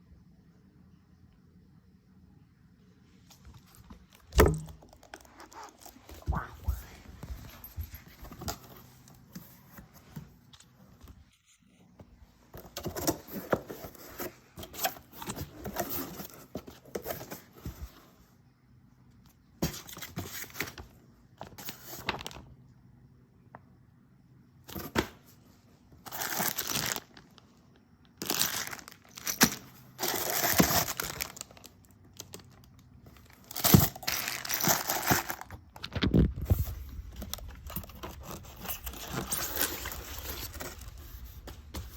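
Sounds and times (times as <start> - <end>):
packaging tearing and crinkling: 26.1 - 27.2, 28.2 - 32.5, 33.2 - 36.4, 37.1 - 41.2.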